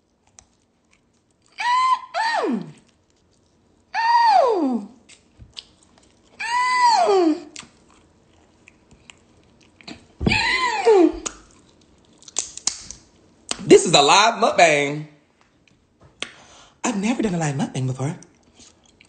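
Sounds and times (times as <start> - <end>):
chewing and smacking: 0.0 - 1.6, 2.7 - 3.9, 5.0 - 6.4, 7.5 - 10.2, 11.2 - 13.6, 18.2 - 19.0
high meow-like cries: 6.4 - 7.5.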